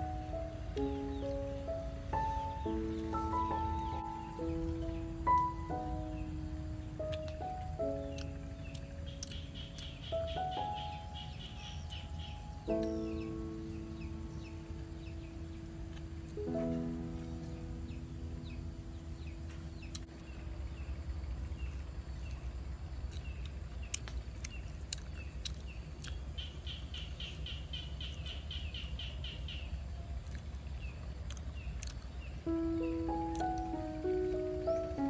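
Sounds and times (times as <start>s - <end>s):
background music: 0.0s - 20.1s, 32.5s - 35.0s
small birds chirping: 0.0s - 35.0s
steady low rumble: 0.0s - 35.0s.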